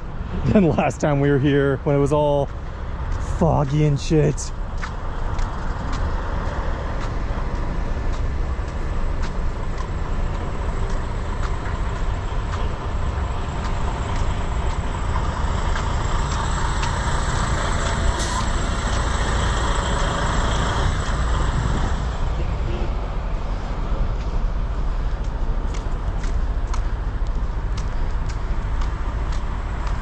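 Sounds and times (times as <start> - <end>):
road vehicle rumbling: 0.0 - 30.0.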